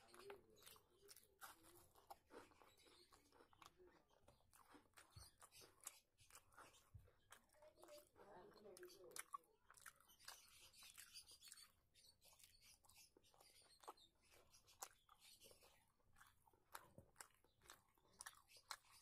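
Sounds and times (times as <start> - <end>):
person chewing: 0.0 - 19.0
wet mouth clicks and smacks: 13.8 - 19.0.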